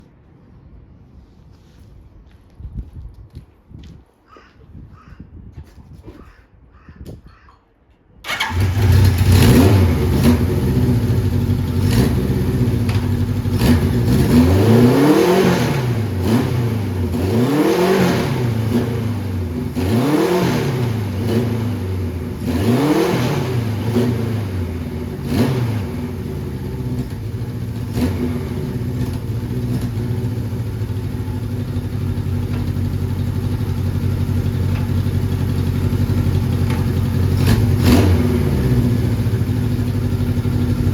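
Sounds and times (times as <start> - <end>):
motorcycle engine revving and idling: 8.3 - 40.9.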